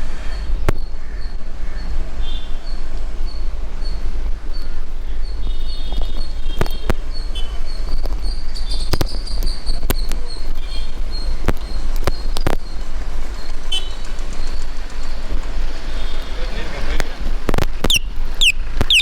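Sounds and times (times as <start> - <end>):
wind rumble on microphone: 0.0 - 19.0
radio interference crackles: 16.3 - 19.0.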